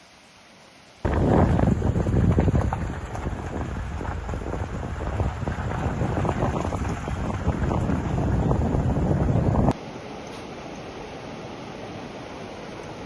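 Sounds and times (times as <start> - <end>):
wind buffeting microphone: 1.0 - 9.8
steady rushing noise: 1.0 - 13.0.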